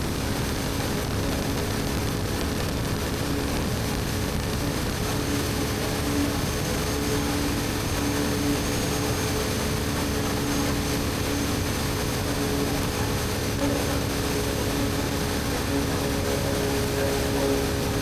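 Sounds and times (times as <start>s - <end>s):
wind and road noise: 0.0s - 18.0s.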